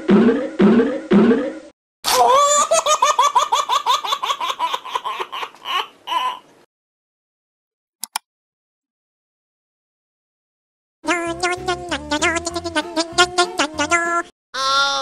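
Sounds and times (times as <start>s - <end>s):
person laughing: 2.1s - 3.0s.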